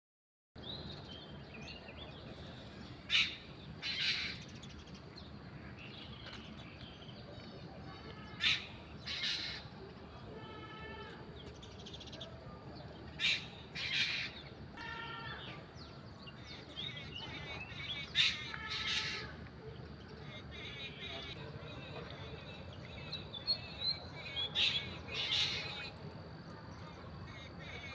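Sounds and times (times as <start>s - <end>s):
loud bird calls: 2.3s - 4.9s, 8.2s - 9.8s, 13.2s - 19.5s, 20.1s - 27.9s.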